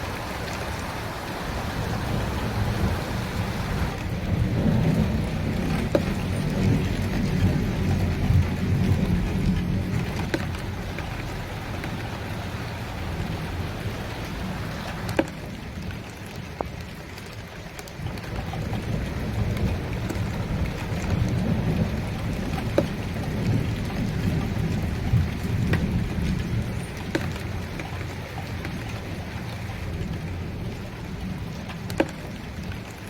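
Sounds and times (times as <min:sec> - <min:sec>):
low rumble of thunder: 0:00.0 - 0:16.9, 0:18.0 - 0:33.0
steady rain falling: 0:00.0 - 0:33.0
drops tapping on hard surface: 0:05.7 - 0:06.2, 0:27.1 - 0:27.4, 0:31.9 - 0:32.2.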